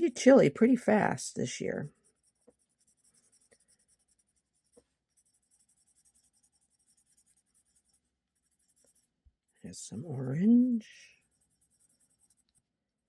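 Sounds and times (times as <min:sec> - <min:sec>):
pen scratching on paper: 0:01.7 - 0:13.0.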